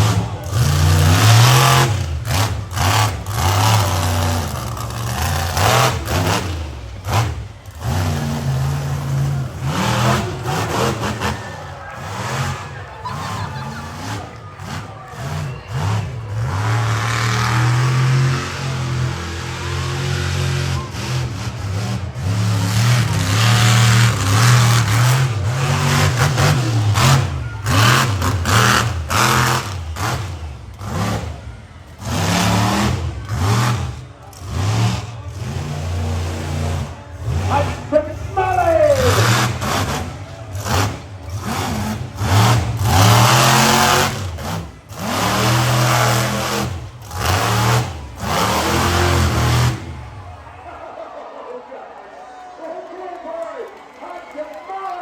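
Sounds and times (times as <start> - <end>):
truck engine revving hard: 0.0 - 51.2.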